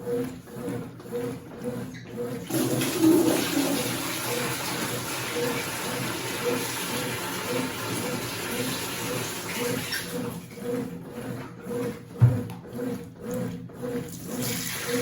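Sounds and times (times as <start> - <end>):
water running into washing machine: 2.4 - 10.5, 13.2 - 15.0.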